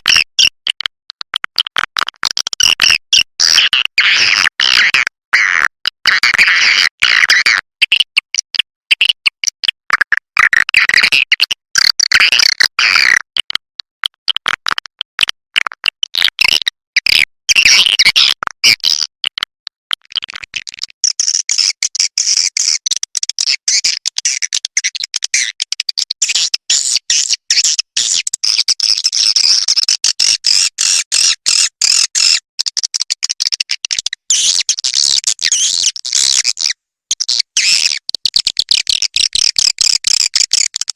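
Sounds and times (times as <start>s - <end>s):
swiftlet chirping and chattering: 33.9s - 40.9s.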